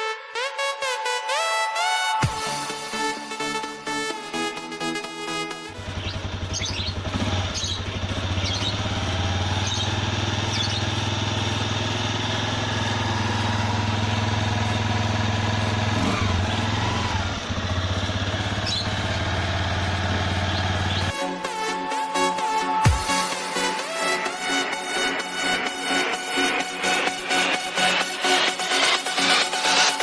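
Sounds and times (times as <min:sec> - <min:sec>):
motorcycle engine idling: 0:05.7 - 0:21.2.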